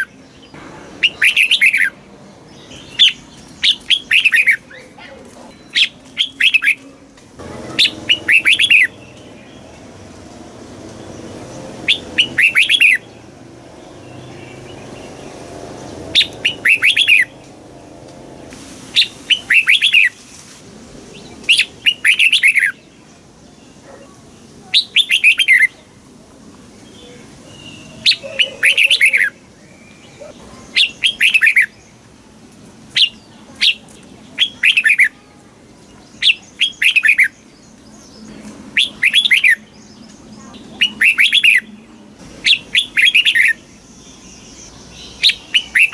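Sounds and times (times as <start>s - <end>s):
bird singing short bright phrases: 0.0s - 6.8s, 7.5s - 9.8s, 18.9s - 20.3s, 33.0s - 41.8s, 42.4s - 45.9s.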